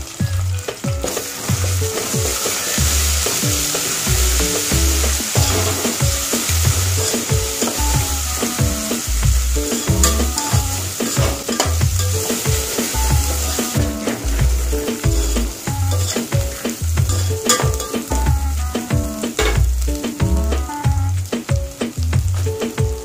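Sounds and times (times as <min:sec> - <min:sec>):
background music with drum beat: 0:00.0 - 0:23.0
onions sizzling in hot oil: 0:00.0 - 0:23.0
spoon scraping a metal pot: 0:10.0 - 0:12.3.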